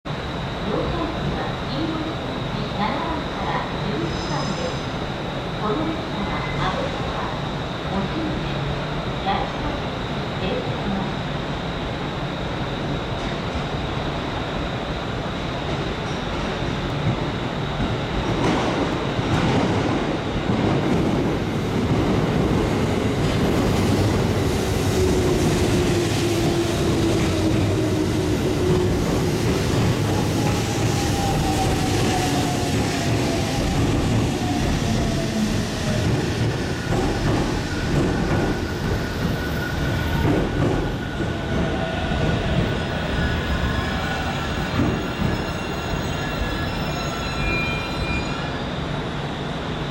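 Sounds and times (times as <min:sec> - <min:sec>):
high squealing tones: 0:43.0 - 0:48.7
train brake whine: 0:43.1 - 0:49.4.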